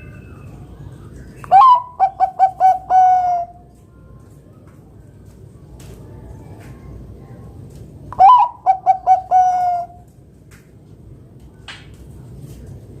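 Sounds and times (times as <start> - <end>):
dove cooing: 1.5 - 3.7, 8.1 - 10.1.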